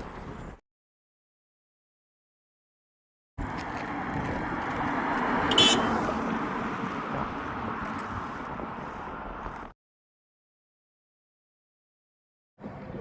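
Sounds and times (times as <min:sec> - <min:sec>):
vehicle passing on road: 0:03.4 - 0:09.8.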